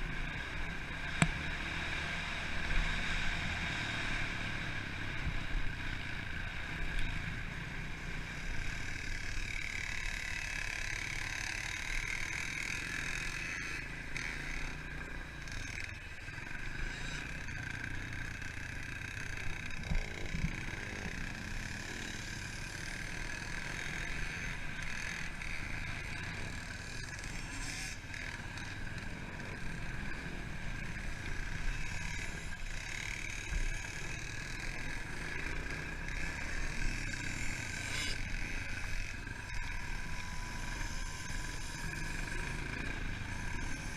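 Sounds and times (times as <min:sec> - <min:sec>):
motorbike engine running: 0:00.0 - 0:43.9.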